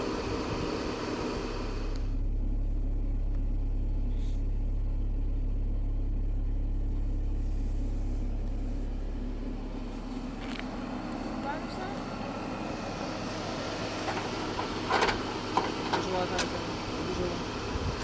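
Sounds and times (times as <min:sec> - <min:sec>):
low rumble: 0:01.5 - 0:13.0.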